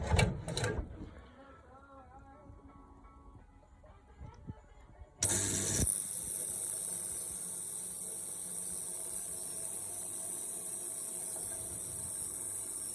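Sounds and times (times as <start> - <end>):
ultrasonic cleaner hiss: 5.2 - 12.9.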